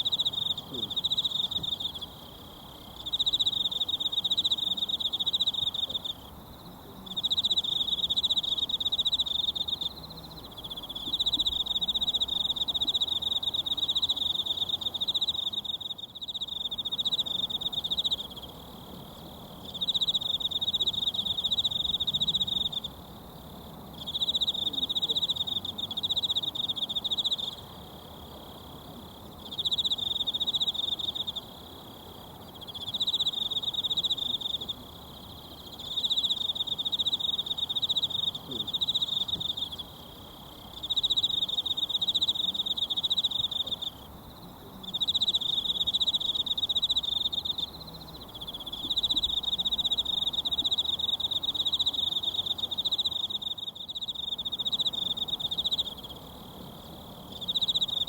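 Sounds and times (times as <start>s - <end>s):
insect trilling: 32.5s - 58.0s.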